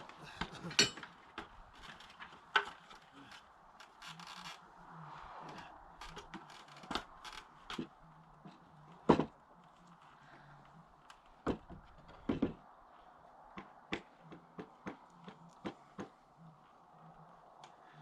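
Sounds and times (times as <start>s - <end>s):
wooden knocks and clunks: 6.0s - 9.4s, 11.3s - 12.7s.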